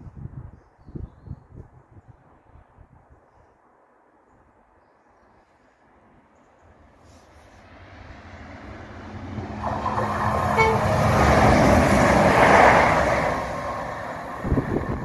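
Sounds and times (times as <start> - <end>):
diesel train passing at speed: 6.6 - 15.0
train horn note: 9.8 - 12.0.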